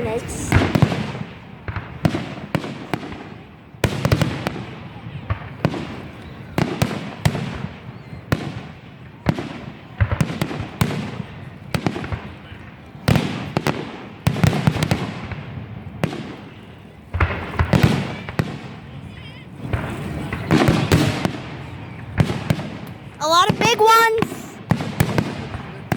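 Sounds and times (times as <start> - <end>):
fireworks bangs: 23.2 - 25.3.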